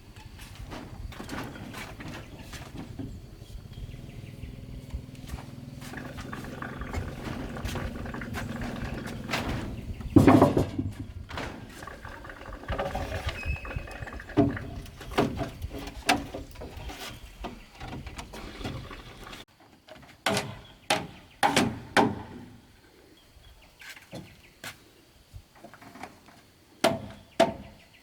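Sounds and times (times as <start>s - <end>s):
pigs grunting: 3.7s - 10.0s, 11.4s - 15.3s, 18.3s - 19.4s.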